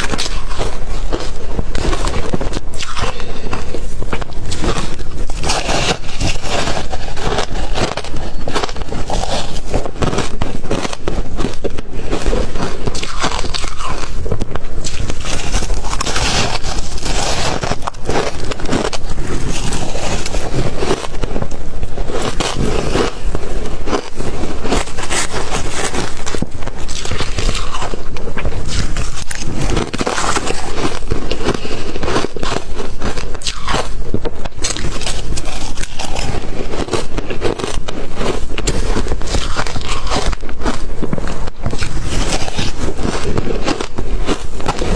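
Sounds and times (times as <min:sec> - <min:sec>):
ice crunching while chewed: 0:00.0 - 0:44.9.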